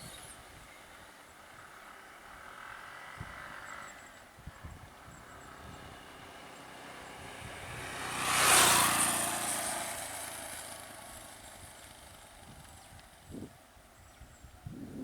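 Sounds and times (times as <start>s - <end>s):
vehicle driving past: 1.6s - 12.7s.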